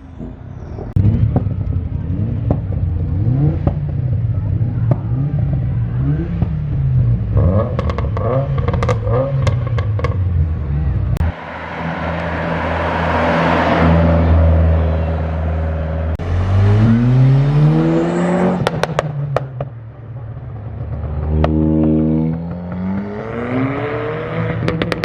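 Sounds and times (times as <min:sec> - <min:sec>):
car engine revving: 0:00.9 - 0:19.8, 0:20.6 - 0:25.0.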